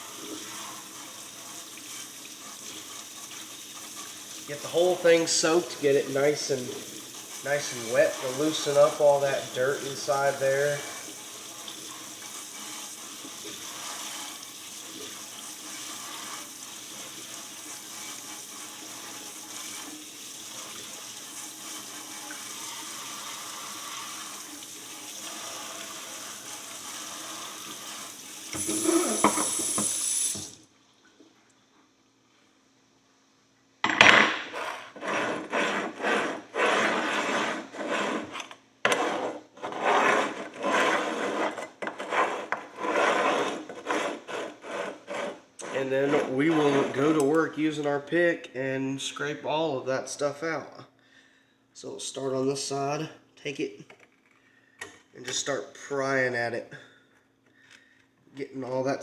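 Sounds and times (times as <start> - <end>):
tap water spraying into sink: 0.0 - 30.7.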